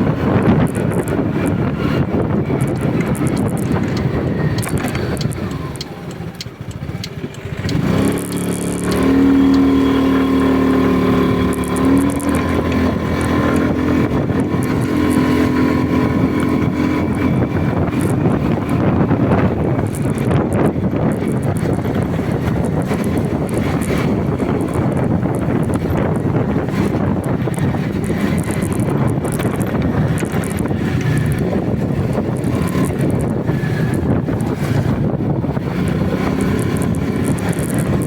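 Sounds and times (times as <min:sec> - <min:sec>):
road noise: 0:00.0 - 0:38.0
rushing wind: 0:00.0 - 0:38.0
vehicle engine accelerating: 0:00.0 - 0:38.0.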